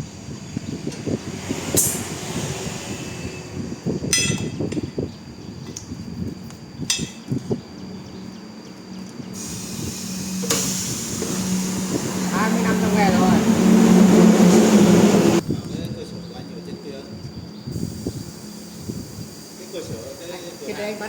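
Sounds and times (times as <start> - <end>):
low motor hum: 9.2 - 15.4.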